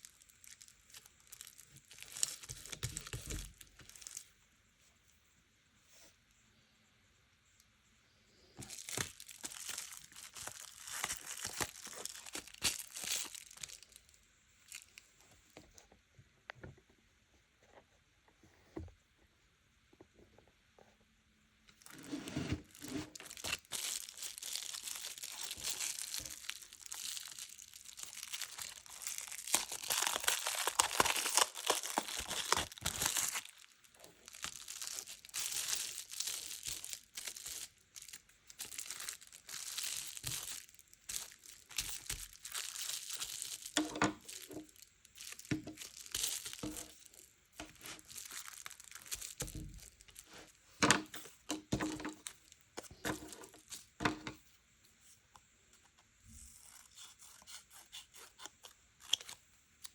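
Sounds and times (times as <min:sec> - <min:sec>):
paper crinkling and tearing: 0:00.0 - 0:04.2, 0:08.6 - 0:14.0, 0:21.9 - 0:50.5.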